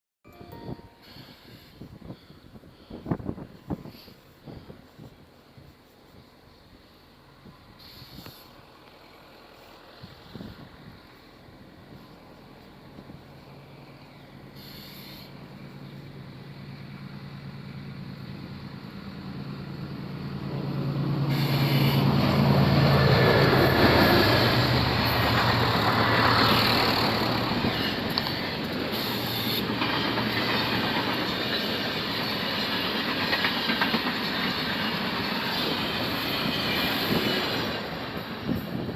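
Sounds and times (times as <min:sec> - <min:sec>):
locomotive engine hum: 0:01.3 - 0:38.9
train wheels clickety-clack: 0:21.2 - 0:38.9.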